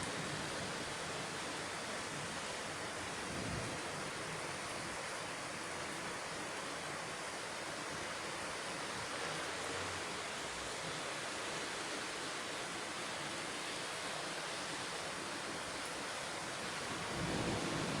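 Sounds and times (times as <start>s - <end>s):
thunderstorm rushing hiss: 17.0s - 18.0s.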